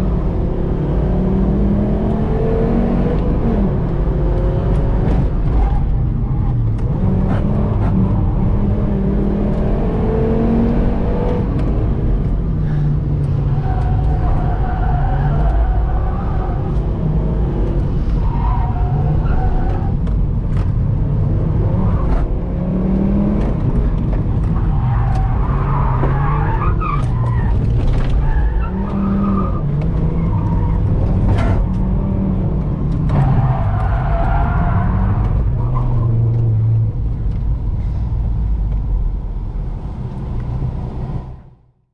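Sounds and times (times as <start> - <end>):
car engine revving: 6.4 - 37.4.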